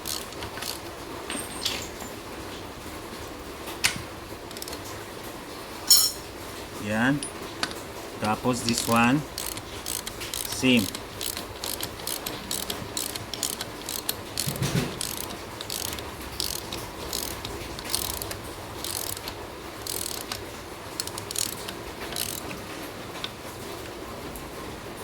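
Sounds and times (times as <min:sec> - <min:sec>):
ratchet clicking: 0:00.0 - 0:00.9, 0:04.5 - 0:04.8, 0:07.2 - 0:20.4, 0:21.0 - 0:22.6
metallic clicks and rattles: 0:00.0 - 0:02.2, 0:03.8 - 0:04.9, 0:07.1 - 0:23.4.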